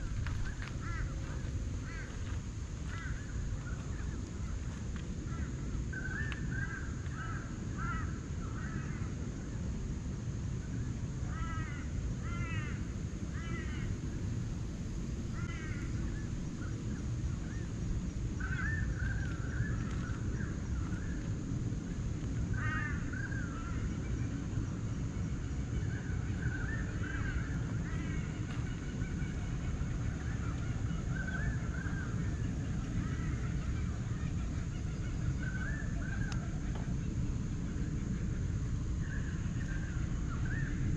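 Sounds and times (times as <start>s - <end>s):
harsh bird calls: 0.0s - 9.2s, 15.3s - 21.5s, 22.3s - 40.9s
steady low rumble: 0.0s - 40.9s
bird warbling: 18.4s - 21.3s, 22.5s - 40.9s.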